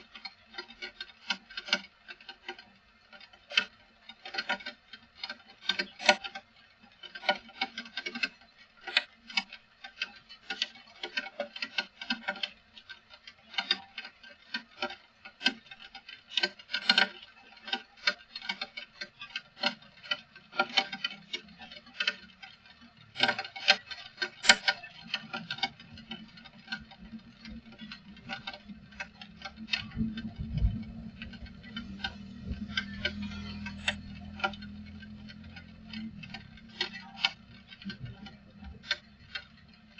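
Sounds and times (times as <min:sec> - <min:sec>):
low steady hum: 0:21.3 - 0:39.9.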